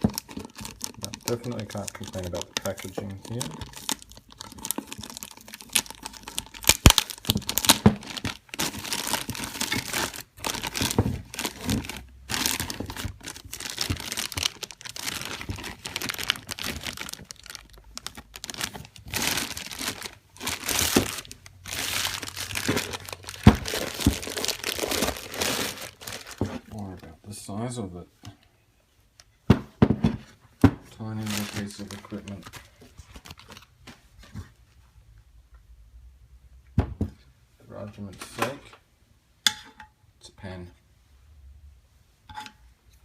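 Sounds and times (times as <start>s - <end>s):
plastic packaging crinkling: 0.0s - 26.8s, 31.0s - 33.7s.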